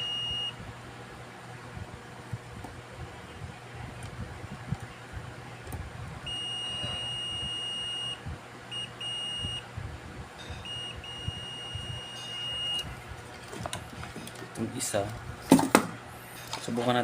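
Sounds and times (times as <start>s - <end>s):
continuity tester beeping: 0.0s - 0.7s, 5.6s - 9.7s, 10.4s - 13.0s.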